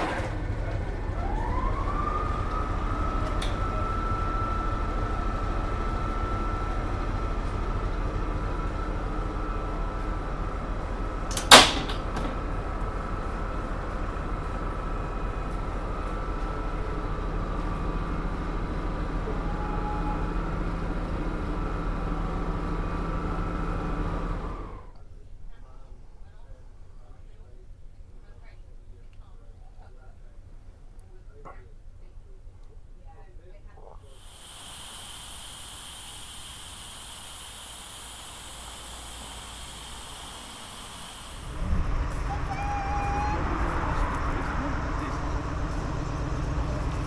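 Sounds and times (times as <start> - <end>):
locomotive whine and rumble: 0.0 - 25.6, 34.2 - 47.0.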